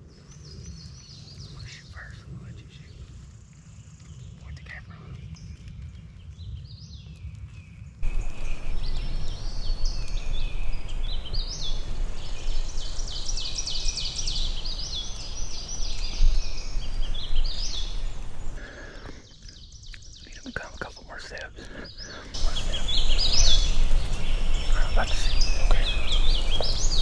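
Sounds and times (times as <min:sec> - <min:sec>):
small birds singing: 0:08.0 - 0:18.6, 0:21.9 - 0:27.0
steady rushing noise: 0:08.0 - 0:18.6, 0:22.4 - 0:27.0.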